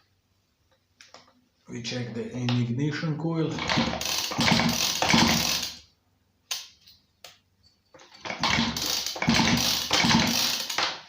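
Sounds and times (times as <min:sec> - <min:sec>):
chainsaw pull-starter cranking: 0:03.6 - 0:05.8, 0:08.1 - 0:11.0.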